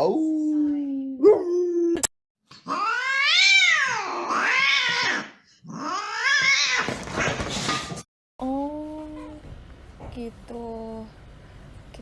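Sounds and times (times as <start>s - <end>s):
cat yowling: 2.6s - 6.9s.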